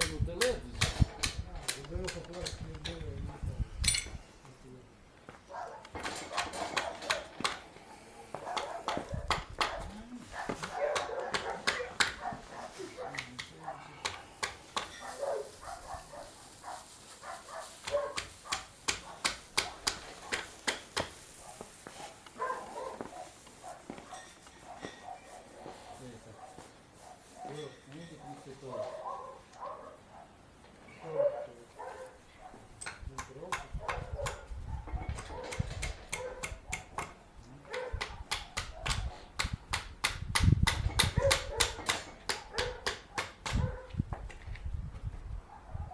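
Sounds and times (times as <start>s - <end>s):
hand tools clicking on metal: 0.0s - 3.2s, 3.8s - 4.2s, 13.1s - 15.1s, 32.8s - 34.4s, 35.0s - 43.6s
metallic clinks and knocks of tools: 0.8s - 4.2s.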